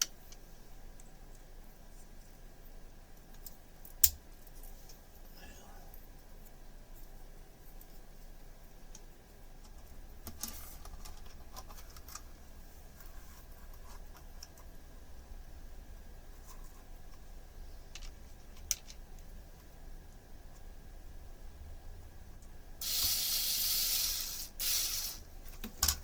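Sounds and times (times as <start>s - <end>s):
plastic parts clicking and tapping: 17.9s - 19.3s, 25.5s - 26.0s.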